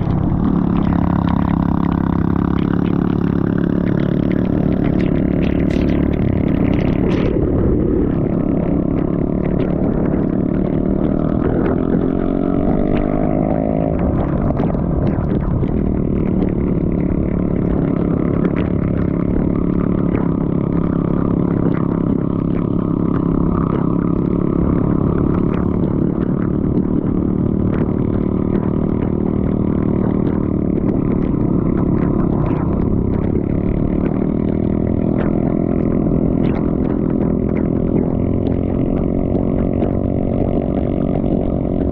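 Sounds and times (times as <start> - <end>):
motorcycle knocks and rattles: 0.0 - 41.9.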